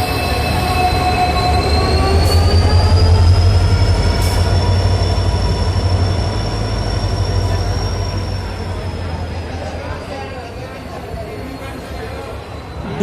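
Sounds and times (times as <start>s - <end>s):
metallic squeal: 0.0s - 8.9s
train rumbling past: 0.0s - 13.0s.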